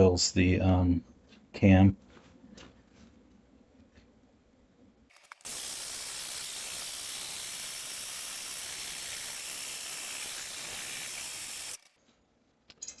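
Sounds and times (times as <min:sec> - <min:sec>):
engine starter motor whirring: 0:05.1 - 0:12.0.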